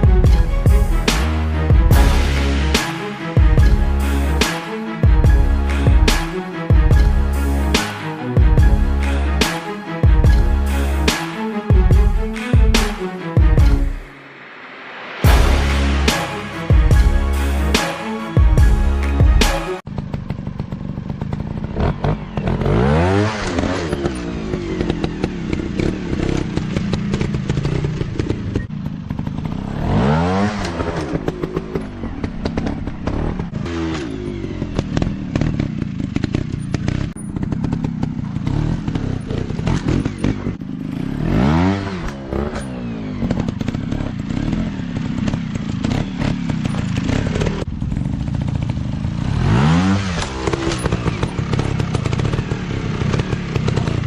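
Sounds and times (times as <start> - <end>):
dirt bike engine revving: 15.2 - 54.0.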